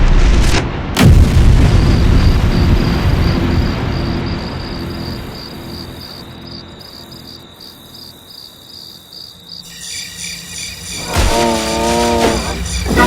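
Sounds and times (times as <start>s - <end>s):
low rumble: 0.0s - 6.9s
cricket chirping trill: 1.2s - 13.0s
pulsing higher tones: 9.7s - 13.0s.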